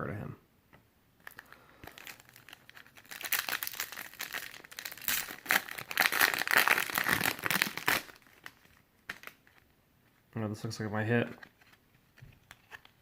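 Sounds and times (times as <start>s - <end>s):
wrapper tearing and crinkling: 1.2s - 9.6s.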